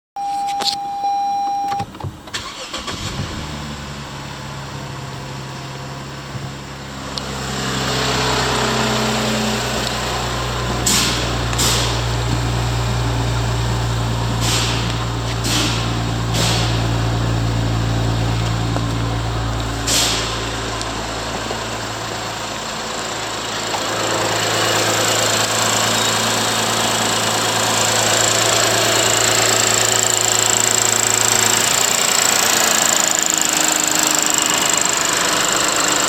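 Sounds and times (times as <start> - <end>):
steady beep: 0.2 - 1.8
car engine starting and idling: 0.2 - 36.0.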